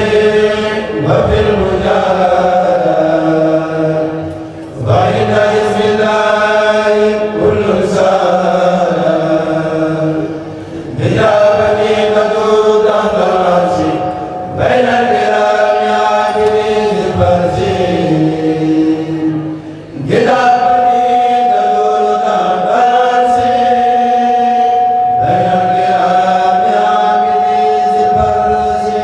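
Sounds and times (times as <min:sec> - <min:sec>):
group chanting in unison: 0:00.0 - 0:29.0.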